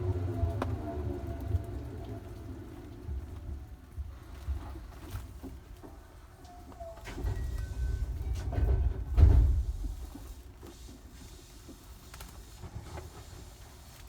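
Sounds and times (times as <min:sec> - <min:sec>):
train rumbling: 0:07.0 - 0:14.0.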